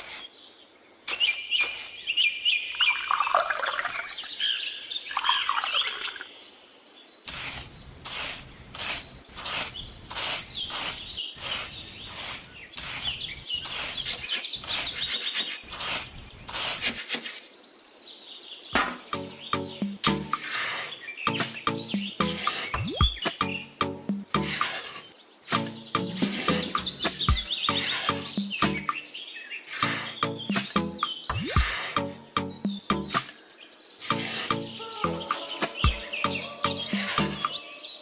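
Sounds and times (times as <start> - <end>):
birds chirping and trilling: 0.0 - 38.0
sharp knocks: 18.8 - 19.1.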